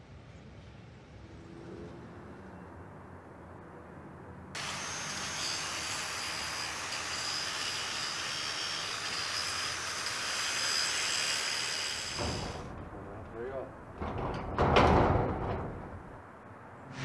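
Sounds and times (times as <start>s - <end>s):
angle grinder cutting metal: 4.6s - 12.7s.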